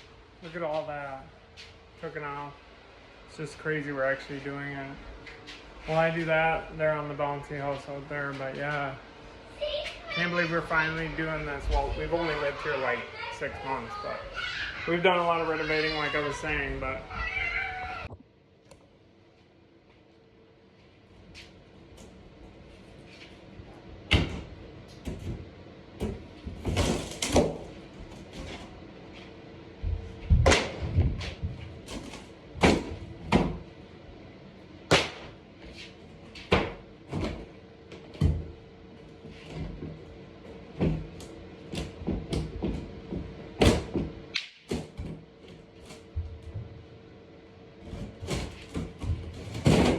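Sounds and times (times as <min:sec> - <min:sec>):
wall demolition bangs and thuds: 0:24.1 - 0:28.6, 0:47.9 - 0:49.9.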